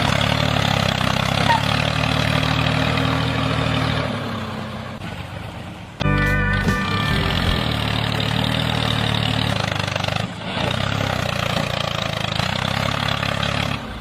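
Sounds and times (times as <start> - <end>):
small engine running: 6.5 - 14.0.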